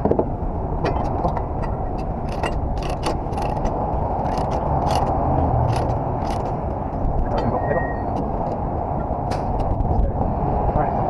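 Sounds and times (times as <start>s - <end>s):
ratcheting metal clicks: 1.0s - 6.6s.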